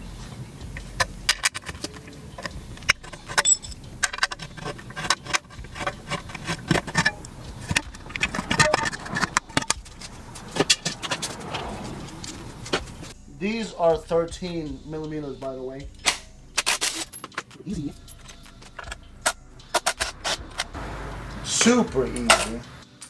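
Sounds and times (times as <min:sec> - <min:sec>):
metal hand tools clinking: 0:01.0 - 0:13.1, 0:16.0 - 0:20.7, 0:21.6 - 0:23.0
sharp clicks and knocks: 0:01.0 - 0:13.1.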